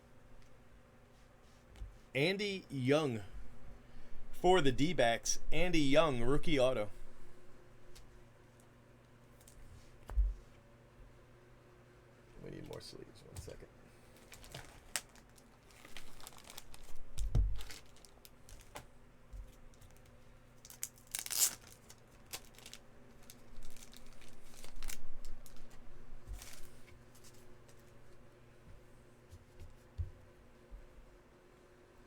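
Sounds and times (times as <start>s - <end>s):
wrappers crinkling and tearing: 14.1s - 18.9s, 19.5s - 27.4s
plastic rustling: 14.1s - 27.9s.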